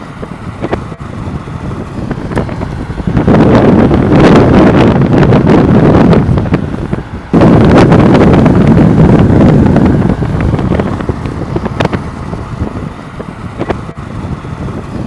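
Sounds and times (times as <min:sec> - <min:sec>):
storm wind gusting on microphone: 0:00.0 - 0:15.0.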